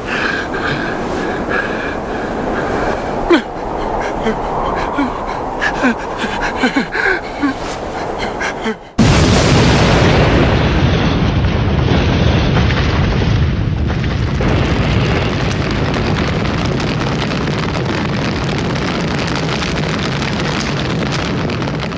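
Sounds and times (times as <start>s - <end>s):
explosion blast and rumble: 9.0s - 21.9s.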